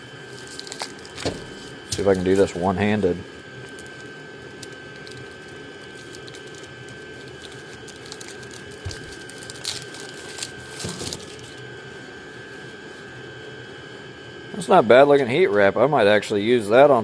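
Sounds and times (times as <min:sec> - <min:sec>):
air heater fan hum: 0:00.0 - 0:17.0
packaging crinkling and rustling: 0:00.1 - 0:13.0.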